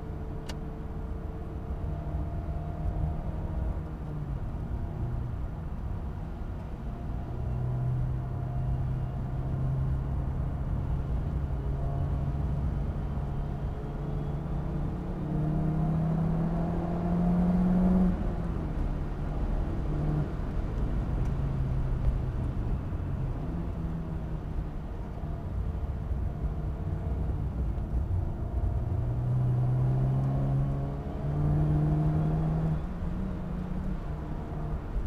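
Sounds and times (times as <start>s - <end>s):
car engine accelerating: 7.4s - 35.0s.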